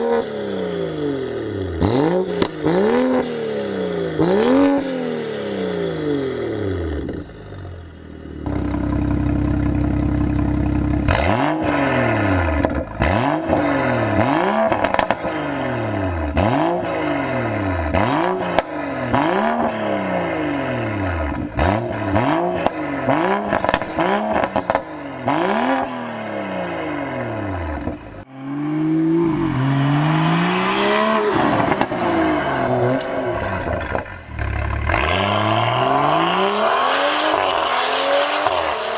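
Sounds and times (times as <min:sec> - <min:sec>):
car engine revving: 0:00.0 - 0:38.9
exhaust pops and crackles: 0:08.5 - 0:11.2, 0:14.7 - 0:15.2, 0:23.5 - 0:24.8.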